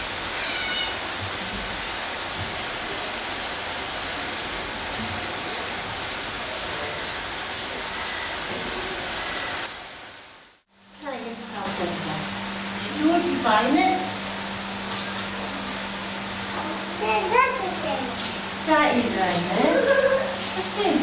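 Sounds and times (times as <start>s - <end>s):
small bird chirping: 12.1s - 13.1s.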